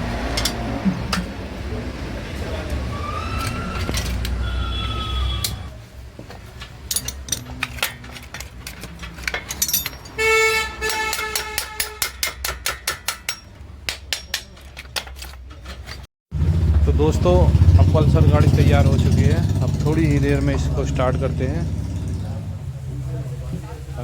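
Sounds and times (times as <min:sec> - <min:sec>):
motorcycle horn beep: 0:04.4 - 0:05.7, 0:10.2 - 0:12.0
metallic tool clicks and clinks: 0:06.9 - 0:10.2.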